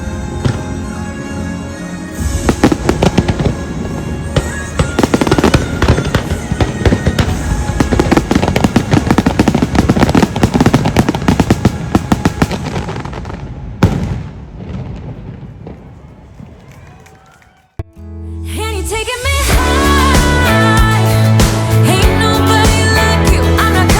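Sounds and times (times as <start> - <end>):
show music: 0.0 - 13.0, 17.8 - 23.9
fireworks bangs and crackles: 0.0 - 16.7.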